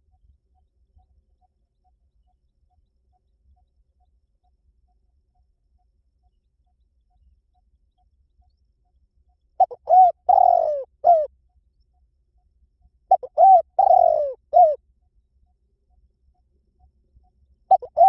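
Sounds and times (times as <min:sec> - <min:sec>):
dove cooing: 0:09.6 - 0:11.3, 0:13.1 - 0:14.8, 0:17.7 - 0:18.0.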